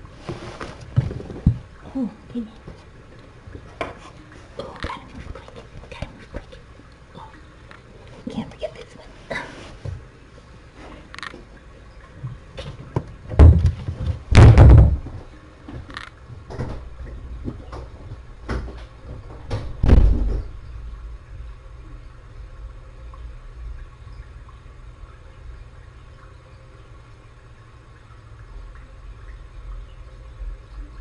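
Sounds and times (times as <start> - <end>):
faint low hum: 0.0 - 31.0
knocks and bumps: 12.8 - 15.2.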